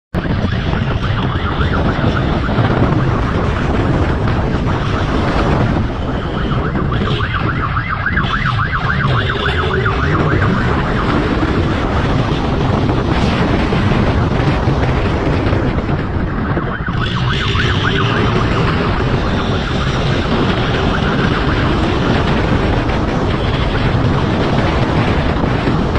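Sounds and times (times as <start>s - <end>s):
wind rush: 0.1s - 25.9s
police siren yelping: 0.2s - 25.9s
vehicle engine rumble: 0.2s - 25.9s.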